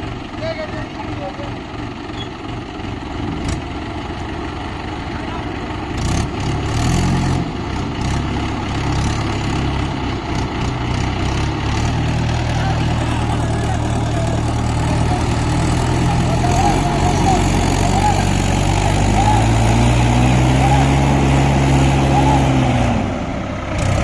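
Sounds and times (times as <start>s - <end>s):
diesel tractor engine running: 0.0s - 24.0s.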